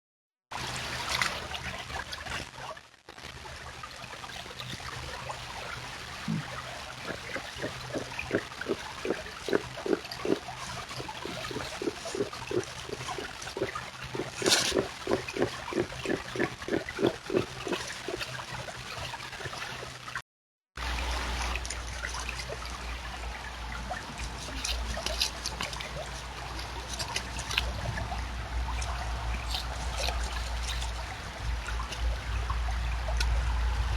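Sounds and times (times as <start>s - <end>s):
water trickling: 4.0s - 20.2s, 20.8s - 33.9s
beaver grunting softly: 6.2s - 18.2s
low steady hum: 20.8s - 33.9s.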